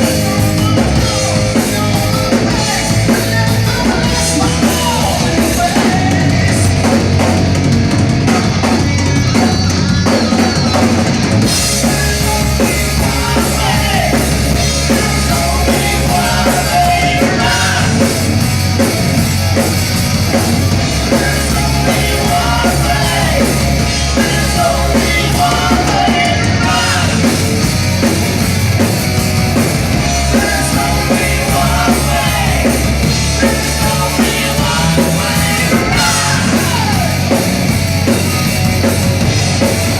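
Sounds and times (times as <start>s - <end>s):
rock band playing: 0.0s - 39.9s
person singing: 11.6s - 18.2s, 21.0s - 27.4s, 30.1s - 37.4s.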